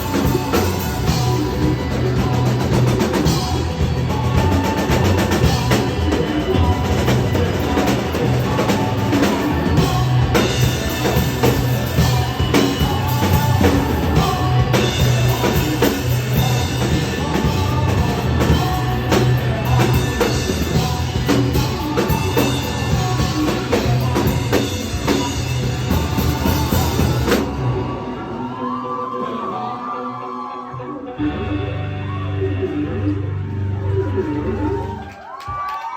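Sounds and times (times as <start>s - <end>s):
live rock band playing: 0.0s - 35.0s.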